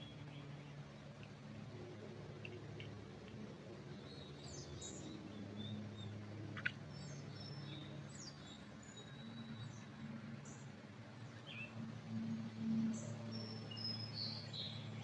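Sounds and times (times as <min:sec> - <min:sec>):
songbirds chirping: 0:03.8 - 0:15.0.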